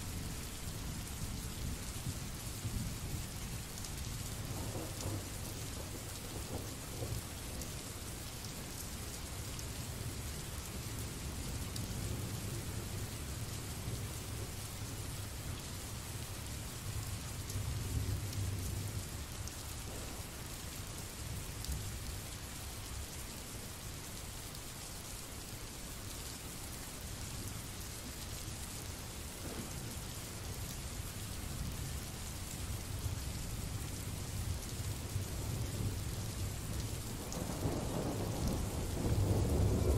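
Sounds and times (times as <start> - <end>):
steady rainfall: 0.0 - 39.9
low rumble of thunder: 0.2 - 8.0, 15.9 - 20.6, 29.3 - 32.0, 32.7 - 39.9.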